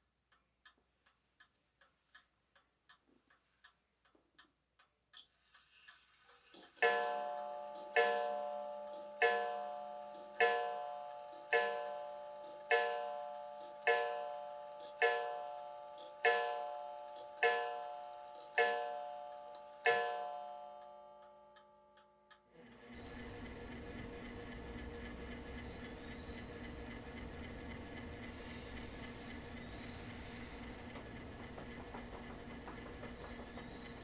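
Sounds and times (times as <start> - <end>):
clock chimes ringing: 6.8 - 22.4.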